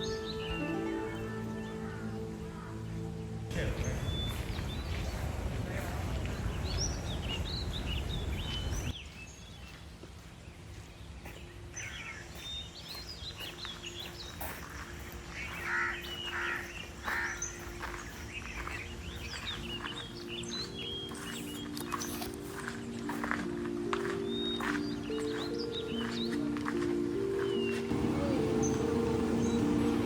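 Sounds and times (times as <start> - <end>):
outdoor background noise: 0.0 - 30.0
small birds chirping: 0.0 - 30.0
low rumbling noise: 27.9 - 30.0.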